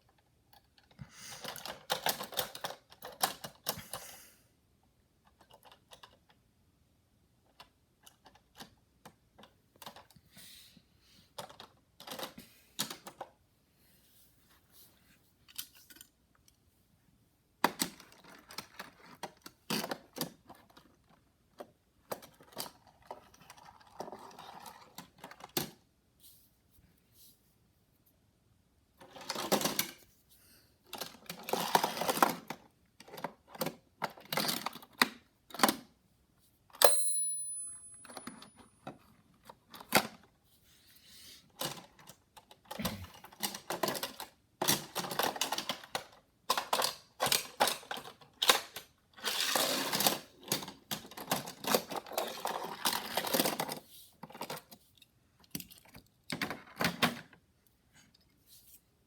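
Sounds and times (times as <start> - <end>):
toy cars clicking and clattering: 0.1 - 4.0, 11.3 - 13.4, 17.6 - 25.8, 29.0 - 30.0, 30.9 - 35.9, 41.5 - 57.4
sharp metallic clink: 36.8 - 38.6.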